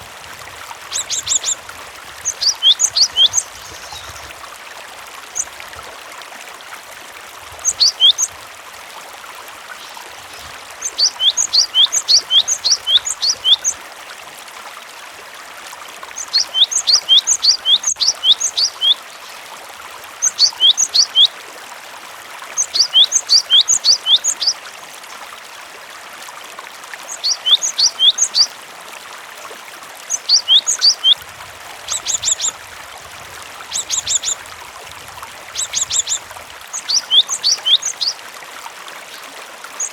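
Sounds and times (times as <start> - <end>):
running water: 0.0 - 39.9
bird singing high chirps: 0.9 - 1.6, 2.2 - 4.2, 7.6 - 8.3, 10.8 - 13.8, 16.2 - 19.0, 20.2 - 21.3, 22.6 - 24.6, 27.1 - 28.5, 30.1 - 31.2, 31.9 - 32.6, 33.7 - 34.4, 35.6 - 38.2.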